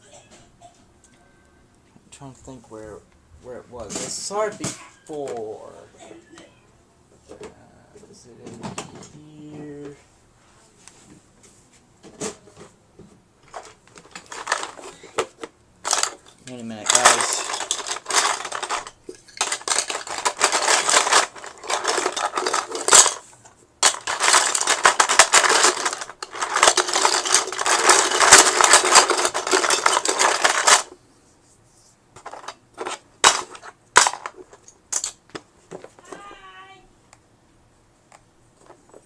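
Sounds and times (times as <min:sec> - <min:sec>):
plastic pieces clattering: 0:13.4 - 0:31.0, 0:32.2 - 0:35.2.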